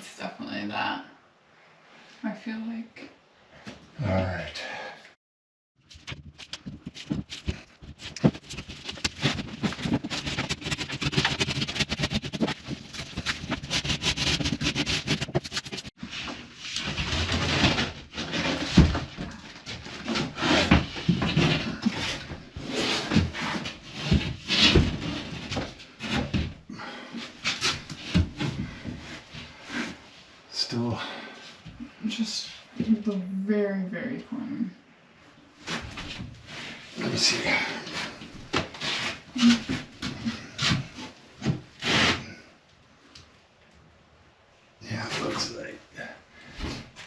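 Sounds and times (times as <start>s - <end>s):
scraping on drywall: 5.8s - 30.2s, 35.6s - 42.5s.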